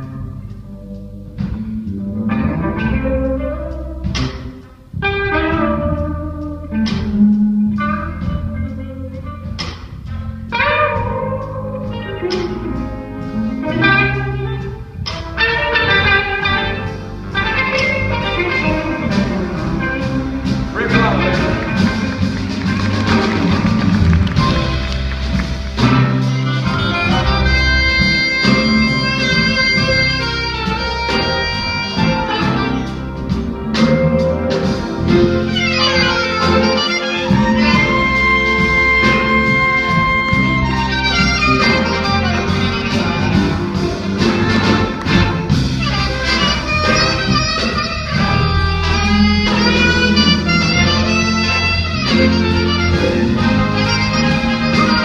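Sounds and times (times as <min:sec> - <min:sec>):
bass: 0:00.0 - 0:55.0
lead line of long notes: 0:00.0 - 0:55.0
steady beat: 0:00.0 - 0:55.0.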